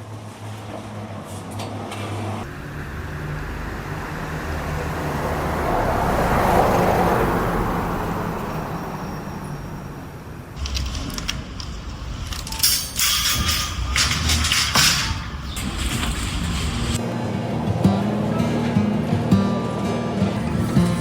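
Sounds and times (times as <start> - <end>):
car passing by: 0.3 - 10.6
clicks and rattles: 10.6 - 17.0.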